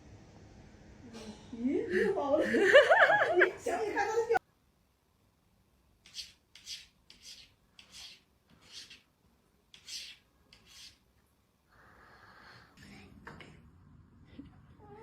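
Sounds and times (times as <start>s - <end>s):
faint steady hiss: 0.0s - 15.0s
soft rasping strokes: 6.0s - 9.1s, 9.7s - 11.1s.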